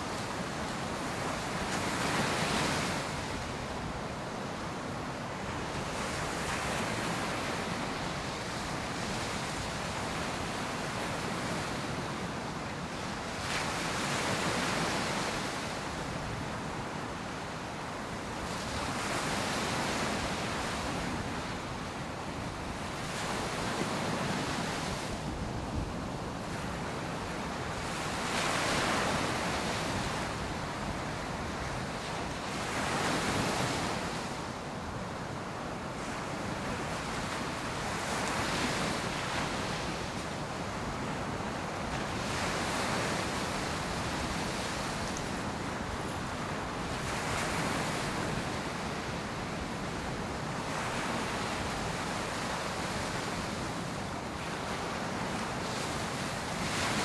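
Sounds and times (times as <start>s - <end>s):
waves breaking on beach: 36.0s - 57.0s.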